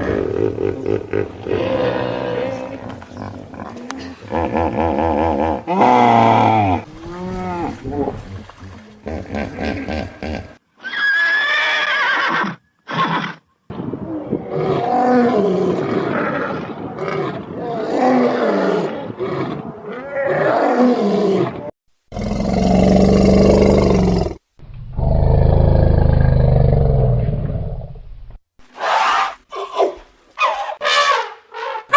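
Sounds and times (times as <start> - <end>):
deep big-cat roars: 14.3 - 27.9.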